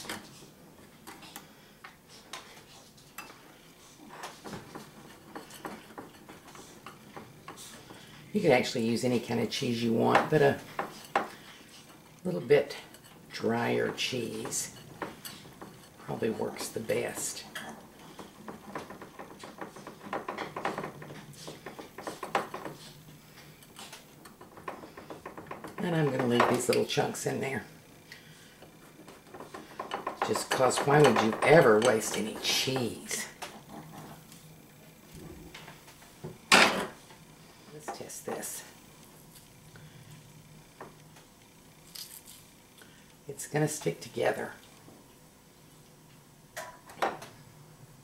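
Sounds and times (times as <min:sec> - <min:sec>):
utensils tapping dishes: 0:02.4 - 0:34.4
spoon scraping a mixing bowl: 0:04.2 - 0:08.0.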